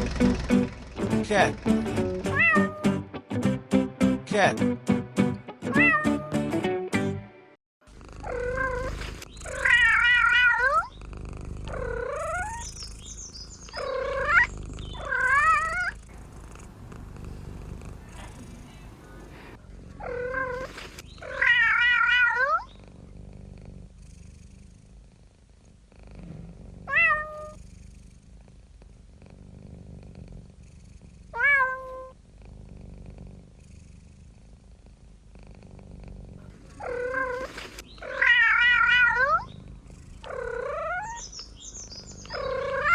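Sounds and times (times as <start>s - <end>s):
cat meowing: 2.3s - 3.0s, 5.7s - 6.4s, 9.6s - 10.9s, 13.8s - 22.7s, 26.9s - 27.6s, 31.4s - 32.1s, 36.8s - 39.5s, 40.2s - 41.2s, 42.3s - 42.9s.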